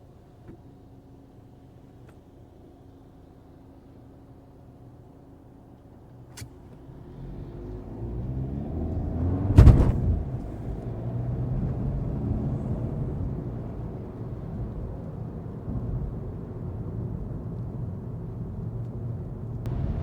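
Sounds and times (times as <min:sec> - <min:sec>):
car engine pulling away: 0:06.4 - 0:20.0
loud short thump: 0:09.5 - 0:10.5.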